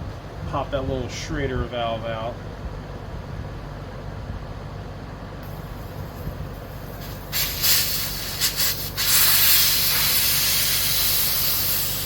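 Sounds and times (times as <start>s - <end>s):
air hissing out of tire: 5.4s - 12.0s.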